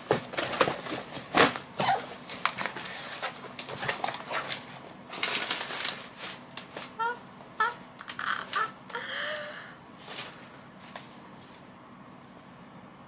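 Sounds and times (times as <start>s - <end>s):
cardboard parcel being torn open: 0.0s - 7.0s
tape rustling and crackling: 0.0s - 8.7s.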